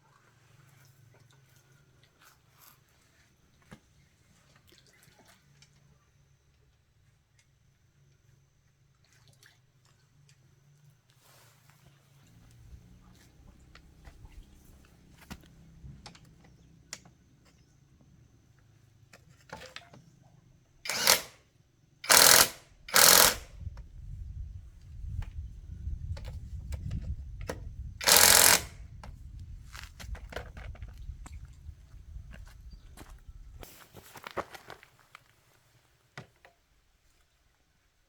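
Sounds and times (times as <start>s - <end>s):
loud hissing bursts: 20.9s - 21.4s, 22.1s - 23.5s.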